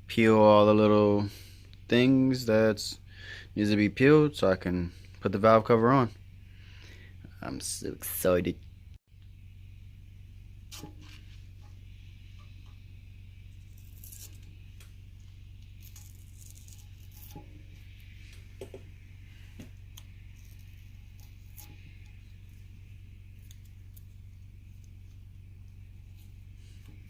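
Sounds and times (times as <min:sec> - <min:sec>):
low hum: 0:00.0 - 0:27.0
tape peeling off: 0:13.6 - 0:18.4.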